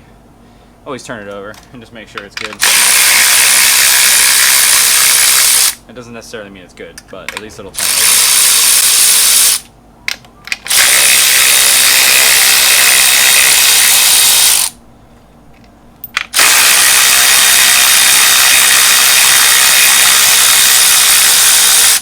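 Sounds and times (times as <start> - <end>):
power tool turning engine over: 2.4 - 5.8, 7.8 - 9.7, 10.5 - 14.8, 16.1 - 22.0.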